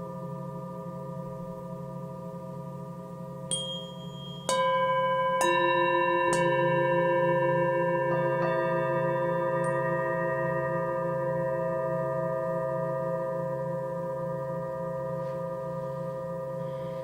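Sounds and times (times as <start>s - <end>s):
singing bowl strikes: 0.0s - 17.0s
singing bowls ringing: 0.0s - 17.0s
low pulsing hum: 6.0s - 17.0s.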